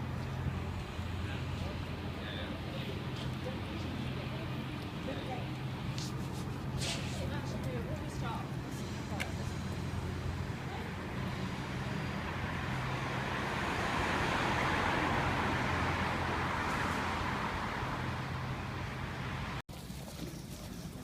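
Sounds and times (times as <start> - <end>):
low traffic rumble: 0.0 - 21.0
car driving past: 8.7 - 19.6.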